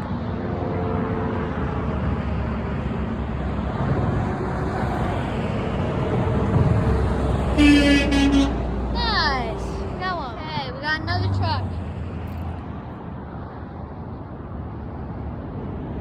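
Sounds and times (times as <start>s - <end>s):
truck passing on road: 0.0s - 16.0s
truck horn blast: 7.6s - 8.7s.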